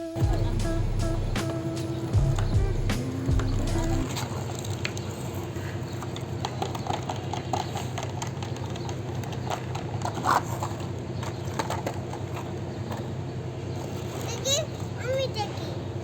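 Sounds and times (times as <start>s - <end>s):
steady low hum: 0.0s - 4.4s
light clicks and clatter: 4.1s - 15.0s.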